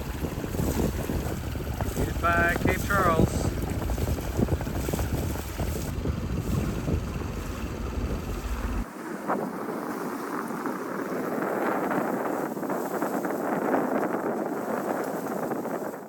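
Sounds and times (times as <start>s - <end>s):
deep rumble: 0.0s - 8.8s
hiss of wind and water: 0.0s - 16.0s
wind buffeting microphone: 0.0s - 16.0s.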